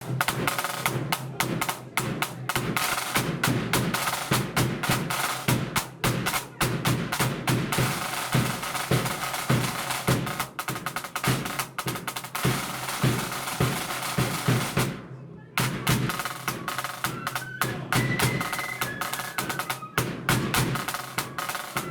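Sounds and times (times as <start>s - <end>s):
bass drum beats: 0.0s - 15.0s, 15.6s - 17.2s
snare drum rolls: 0.0s - 15.0s, 15.6s - 21.9s.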